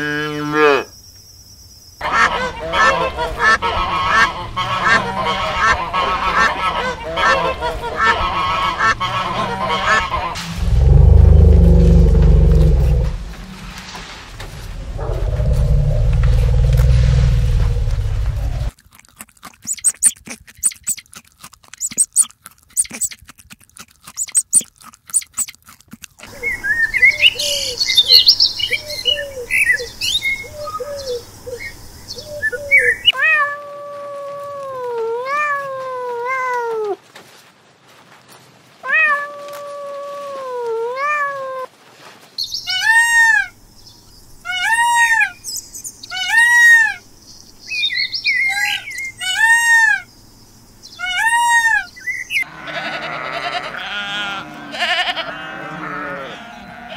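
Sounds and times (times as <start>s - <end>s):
crackling clicks: 11.4s - 26.3s
rapid short chirps: 19.6s - 21.1s, 21.7s - 23.4s, 24.0s - 25.6s.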